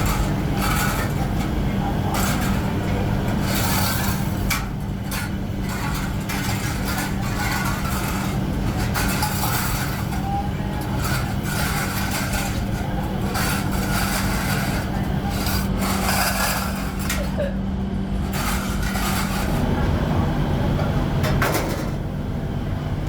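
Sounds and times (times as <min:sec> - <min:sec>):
scraping and rubbing: 0:00.0 - 0:10.2, 0:10.8 - 0:17.4, 0:18.2 - 0:19.7.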